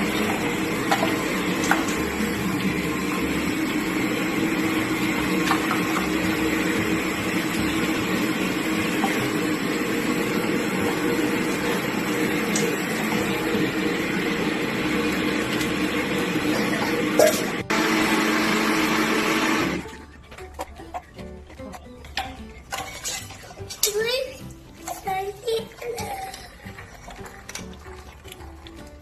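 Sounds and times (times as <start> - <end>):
electric blender motor running: 0.0 - 19.9.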